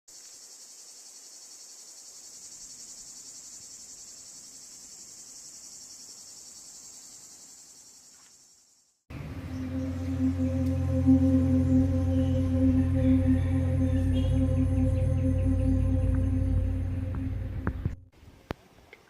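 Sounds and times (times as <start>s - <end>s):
insects trilling: 0.1s - 9.0s.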